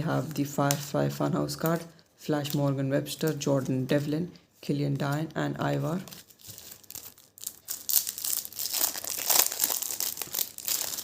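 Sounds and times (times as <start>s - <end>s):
wrapper tearing and crinkling: 6.0s - 11.0s.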